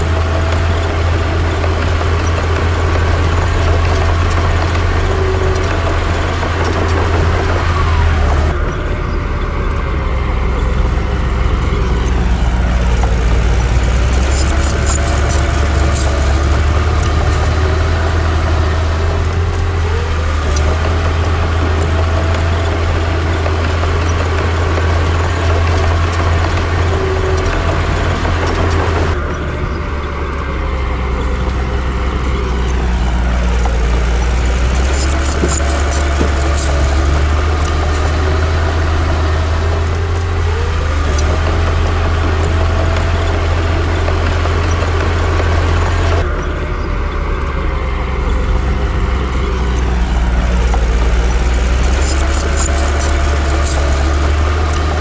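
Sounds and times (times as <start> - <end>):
heavy diesel engines running: 0.0 - 55.0
light metal clanks: 11.4 - 43.2.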